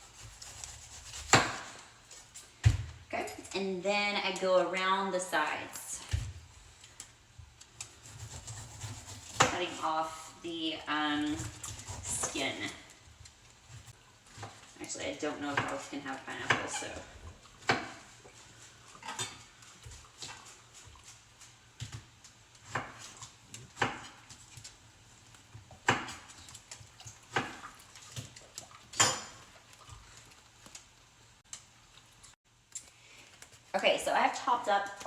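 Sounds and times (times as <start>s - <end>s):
knife chopping on cutting board: 0.2s - 1.8s, 8.0s - 9.8s, 17.6s - 18.1s, 21.8s - 24.2s, 25.8s - 26.4s.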